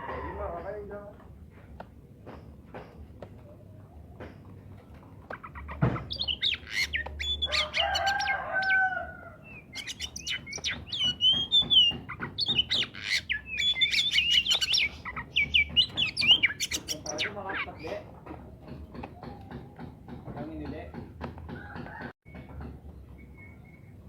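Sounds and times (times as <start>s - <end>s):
songbird singing: 1.8s - 24.0s
low drawn-out bird call: 5.4s - 17.9s.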